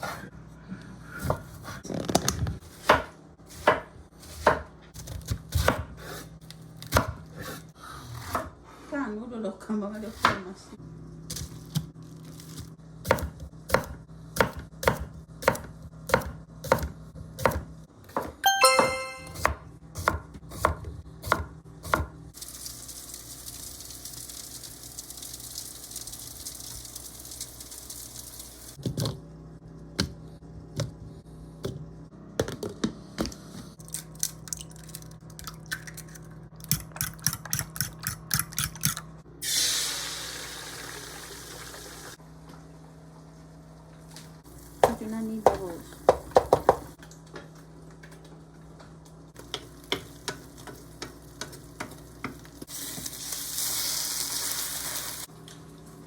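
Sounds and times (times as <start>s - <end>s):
knife chopping on cutting board: 2.7s - 6.2s, 10.1s - 10.4s, 13.0s - 22.2s
food sizzling in hot pan: 22.4s - 28.8s, 39.4s - 42.2s, 52.7s - 55.3s.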